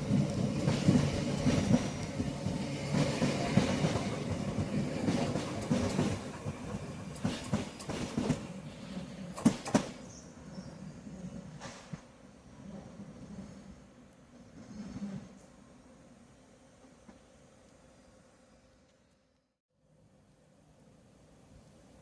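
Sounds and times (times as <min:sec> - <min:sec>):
electric train running on track: 0:00.0 - 0:10.4.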